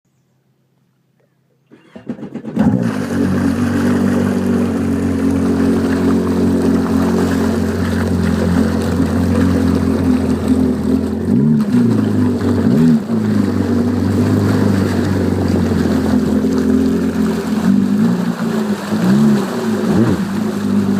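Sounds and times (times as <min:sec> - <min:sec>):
watercraft engine idling: 0:00.6 - 0:20.9
engine starter cranking: 0:01.7 - 0:03.4.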